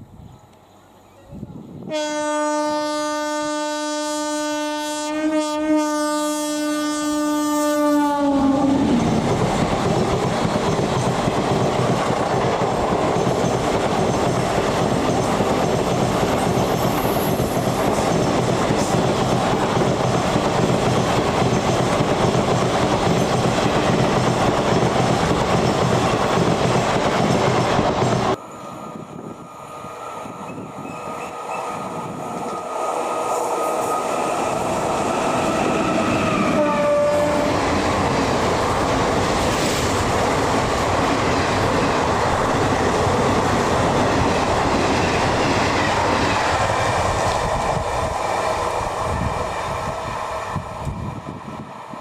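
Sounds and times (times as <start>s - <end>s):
train passing at speed: 0.0s - 52.0s
train horn blast: 1.9s - 9.0s, 36.1s - 37.6s.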